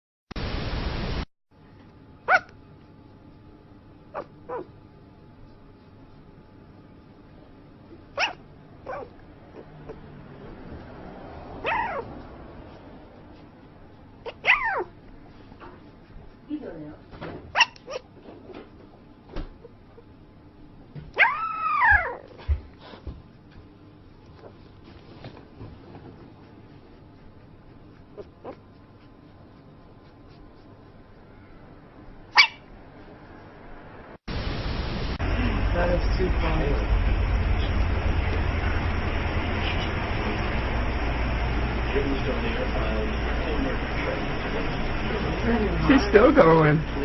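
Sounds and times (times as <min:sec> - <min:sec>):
loud hiss-like noise: 0:00.4 - 0:01.2, 0:34.2 - 0:47.0
dog yipping in its sleep: 0:02.2 - 0:02.6, 0:04.1 - 0:04.8, 0:08.1 - 0:10.0, 0:11.6 - 0:12.8, 0:14.2 - 0:15.0, 0:17.5 - 0:18.2, 0:21.2 - 0:22.4, 0:27.9 - 0:29.6, 0:32.3 - 0:32.8.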